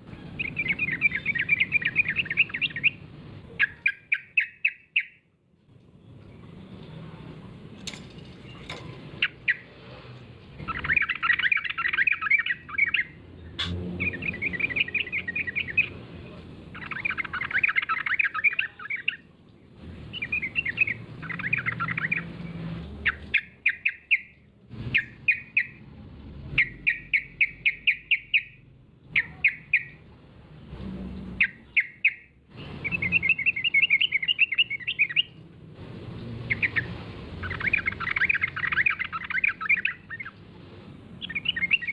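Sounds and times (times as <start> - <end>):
bird chattering song: 0.1 - 5.3, 8.3 - 9.7, 10.5 - 19.3, 20.1 - 25.8, 26.6 - 30.0, 31.4 - 35.4, 36.4 - 40.4, 41.2 - 41.9.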